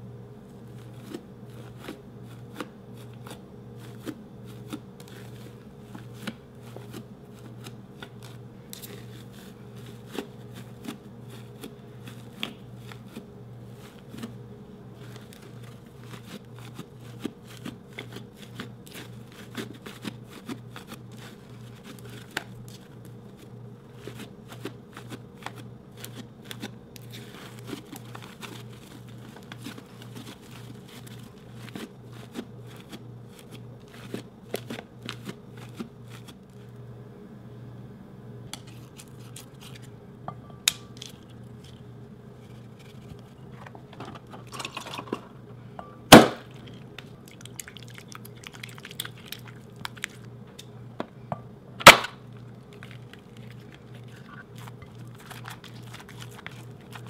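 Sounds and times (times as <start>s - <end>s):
steady low hum: 0.0s - 57.0s
hands kneading slime: 0.5s - 36.7s, 46.4s - 50.6s, 51.8s - 57.0s.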